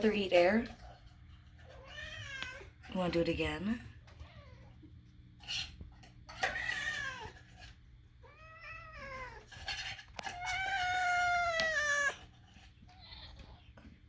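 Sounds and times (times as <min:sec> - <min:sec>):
cat meowing: 0:08.2 - 0:09.5, 0:10.2 - 0:12.2.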